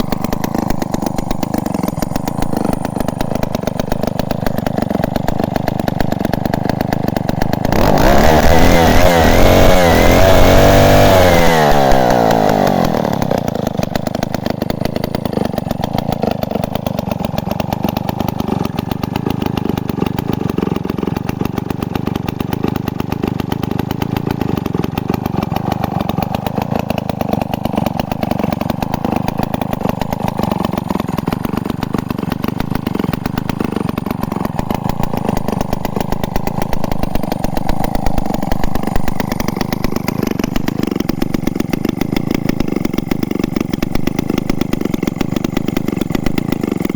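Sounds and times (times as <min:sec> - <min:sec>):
two-stroke chainsaw engine: 0:00.0 - 0:46.9.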